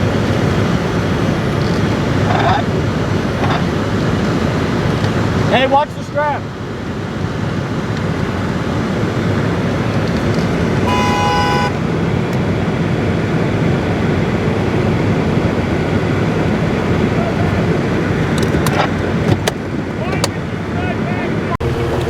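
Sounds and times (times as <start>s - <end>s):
vehicle engine and road noise: 0.0s - 22.0s
car horn honk: 10.8s - 11.8s.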